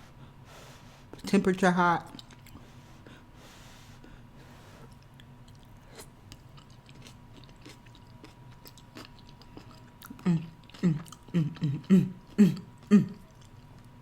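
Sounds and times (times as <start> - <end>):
chewing with wet mouth clicks: 2.0 - 2.6, 4.9 - 14.0.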